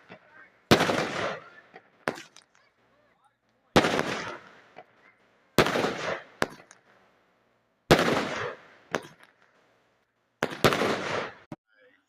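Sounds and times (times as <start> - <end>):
sharp bangs with hissing decay: 0.0 - 2.4, 3.8 - 7.2, 7.9 - 11.5.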